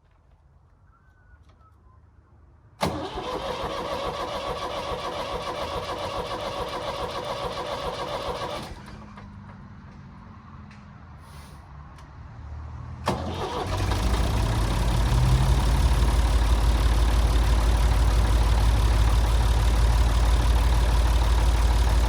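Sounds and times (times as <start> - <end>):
starter motor cranking engine: 2.8 - 9.0, 13.1 - 22.0
backhoe engine running: 13.2 - 22.0.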